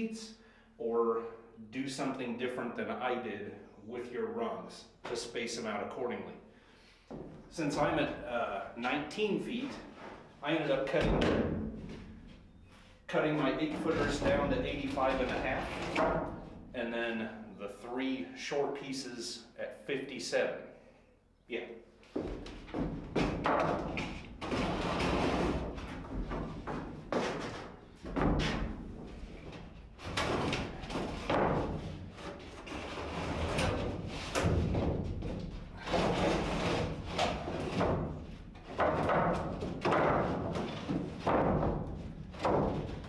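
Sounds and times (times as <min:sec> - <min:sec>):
irregular thumps and knocks: 0:22.1 - 0:43.0.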